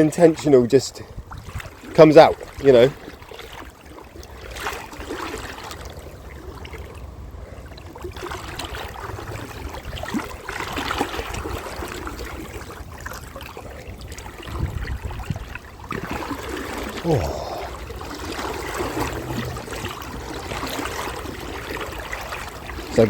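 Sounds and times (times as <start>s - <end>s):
river water splashing around legs: 1.2s - 23.0s.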